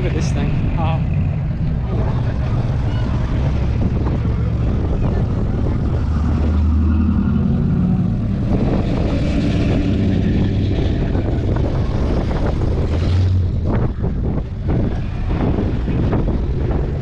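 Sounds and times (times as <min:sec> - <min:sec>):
car engines rumbling past: 0:00.0 - 0:17.0
wind buffeting microphone: 0:00.0 - 0:17.0.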